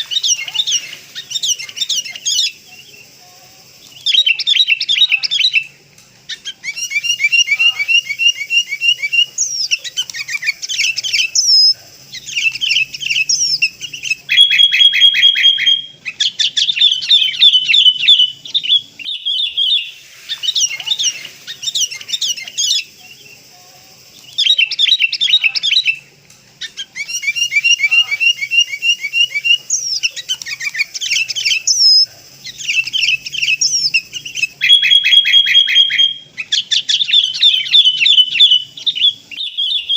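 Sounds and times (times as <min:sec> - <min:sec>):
bird chirping rapidly: 0:00.0 - 0:03.1, 0:03.9 - 0:05.7, 0:06.3 - 0:23.5, 0:24.2 - 0:39.9.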